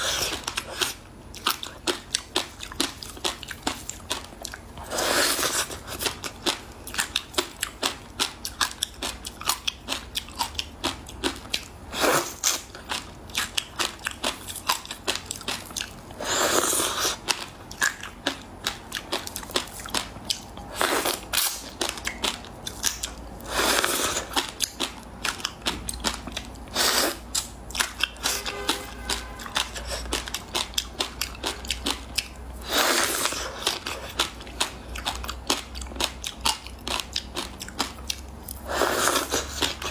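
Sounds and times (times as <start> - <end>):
person crunching frozen ice: 4.9 - 6.0.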